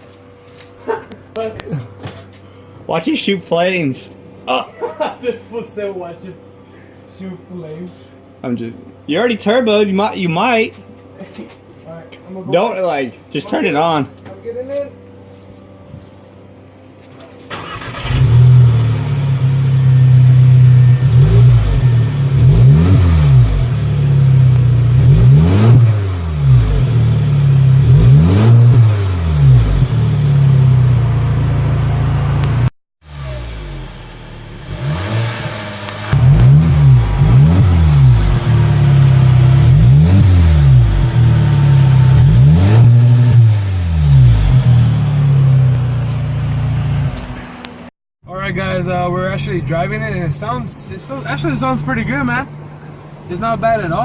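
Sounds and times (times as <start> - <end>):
car engine revving: 17.5 - 47.4.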